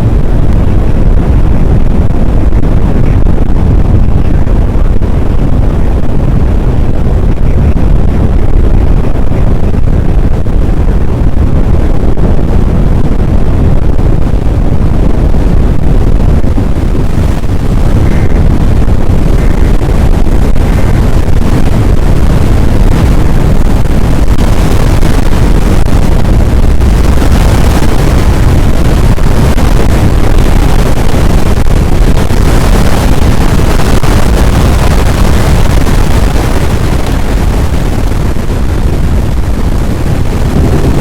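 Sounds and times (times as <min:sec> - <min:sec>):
strong wind on microphone: 0:00.0 - 0:41.0.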